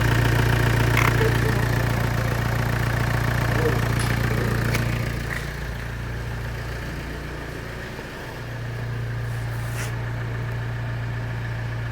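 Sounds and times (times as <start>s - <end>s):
diesel engine idling: 0.0s - 11.9s.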